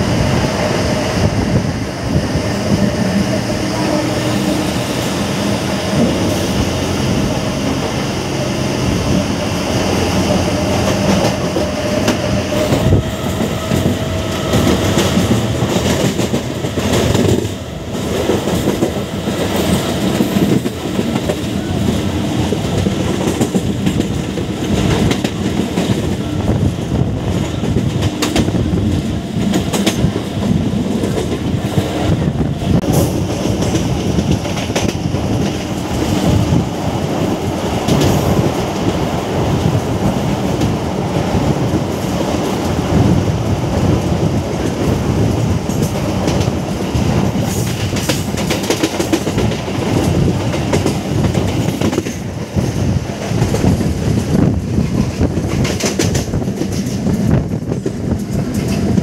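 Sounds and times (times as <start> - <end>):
train rolling rumble: 0.0 - 59.0
train wheels clattering over rail joints: 9.2 - 59.0.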